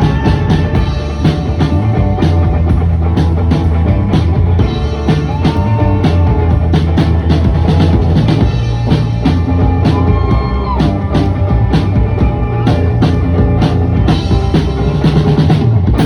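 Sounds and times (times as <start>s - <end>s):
bass line: 0.0s - 16.0s
drum-kit beat: 0.0s - 16.0s.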